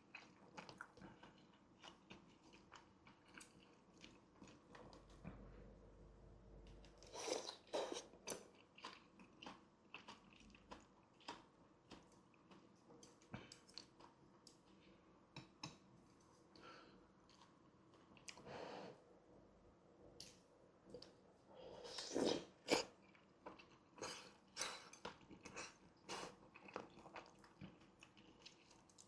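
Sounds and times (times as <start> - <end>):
close-miked chewing: 0.0 - 5.2, 6.6 - 14.8, 22.1 - 29.0.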